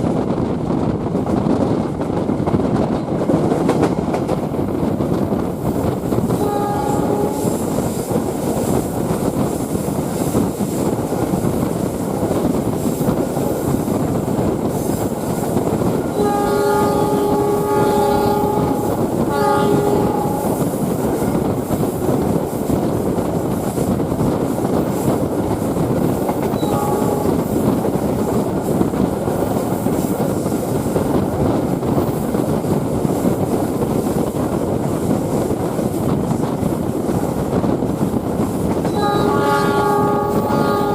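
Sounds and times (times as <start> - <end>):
train running on track: 0.0 - 40.9
train horn blasts: 6.3 - 7.8, 16.1 - 20.8, 26.5 - 27.6, 38.9 - 40.9.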